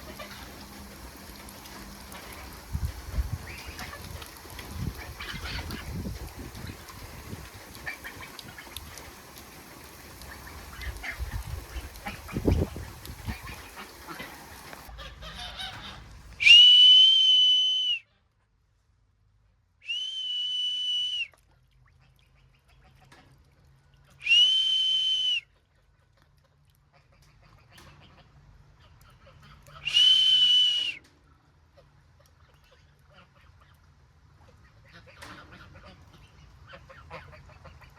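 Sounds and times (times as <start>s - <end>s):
high whistle tone: 16.4s - 18.0s, 19.8s - 21.3s, 24.2s - 25.4s, 29.9s - 31.0s.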